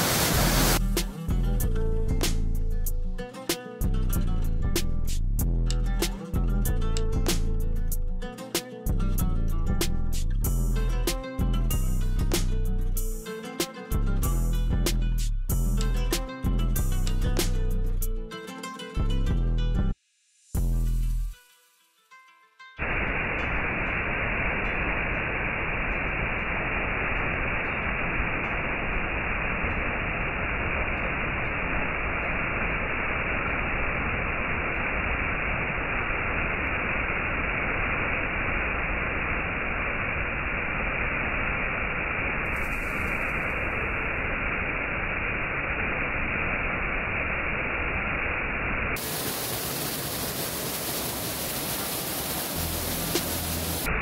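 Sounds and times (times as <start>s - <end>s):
waterfall rushing: 0.0s - 0.8s, 42.5s - 44.0s, 49.0s - 54.0s.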